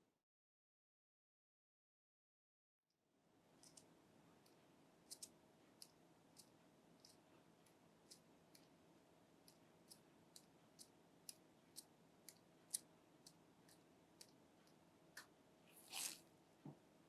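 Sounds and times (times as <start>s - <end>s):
brief rustle: 15.8s - 16.2s.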